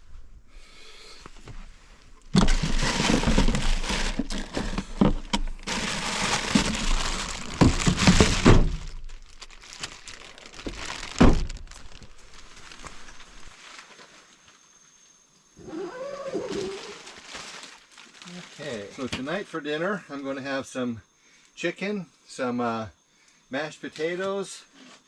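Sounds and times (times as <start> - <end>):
rustling and crinkling: 1.2 - 14.8, 15.4 - 19.4.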